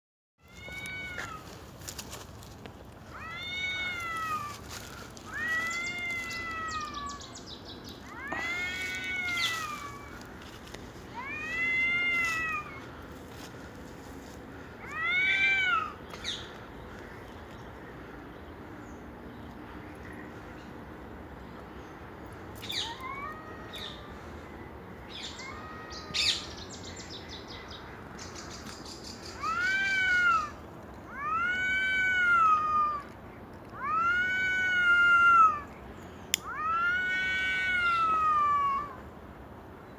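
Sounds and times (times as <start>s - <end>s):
cat meowing: 0.4s - 1.5s, 3.1s - 4.6s, 5.3s - 7.3s, 11.1s - 12.8s.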